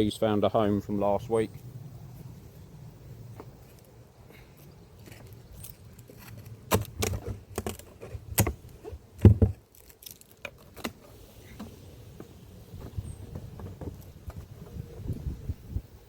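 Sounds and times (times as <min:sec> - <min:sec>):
clicks and knocks of beehive parts: 0:05.0 - 0:11.8.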